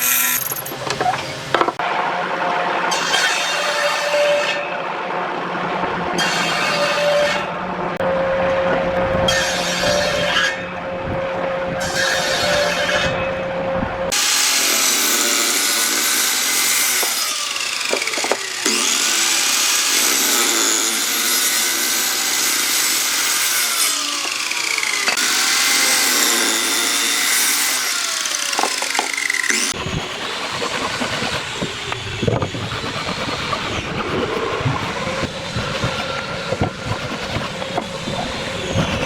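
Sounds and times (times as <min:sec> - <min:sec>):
power tool cutting wood: 0:00.0 - 0:00.9, 0:14.1 - 0:39.0.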